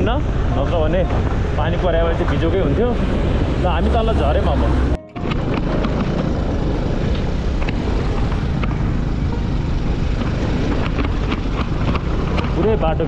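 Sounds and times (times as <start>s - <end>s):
wind and road noise: 0.0s - 13.0s
scooter engine running: 4.5s - 13.0s.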